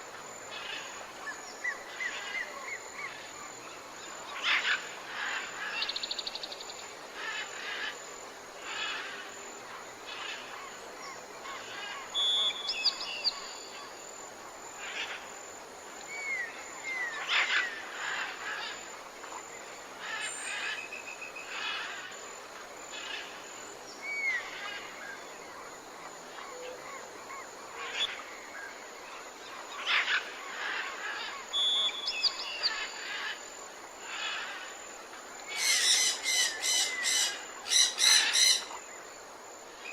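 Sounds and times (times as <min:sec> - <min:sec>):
birds chirping and calling: 0:35.5 - 0:38.8.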